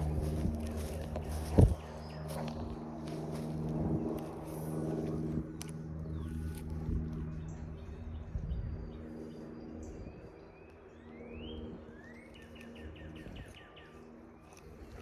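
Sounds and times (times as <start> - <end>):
songbirds calling: 0.0 - 15.0
steady low hum: 0.0 - 15.0
muffled low thump: 1.4 - 1.8.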